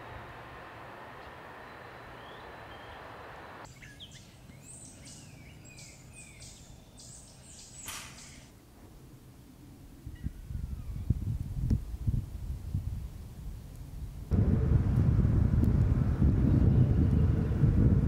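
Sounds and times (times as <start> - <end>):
outdoor background noise: 0.0 - 18.0
bird chirps and calls: 3.7 - 8.5.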